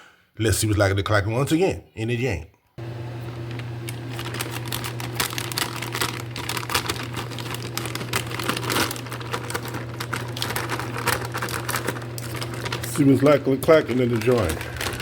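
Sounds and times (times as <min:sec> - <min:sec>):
plastic bag crinkling: 0:03.4 - 0:15.0.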